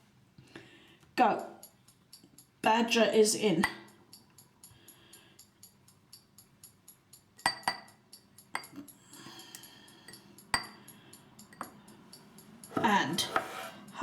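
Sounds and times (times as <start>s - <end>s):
teaspoon clinking against bowls: 7.4s - 11.8s.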